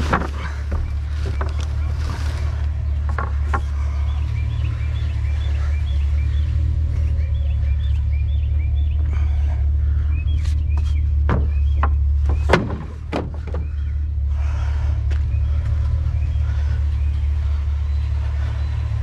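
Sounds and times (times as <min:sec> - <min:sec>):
birds chirping: 0:00.0 - 0:19.0
low vehicle rumble: 0:00.0 - 0:19.0
sharp clicks and knocks: 0:10.8 - 0:13.8.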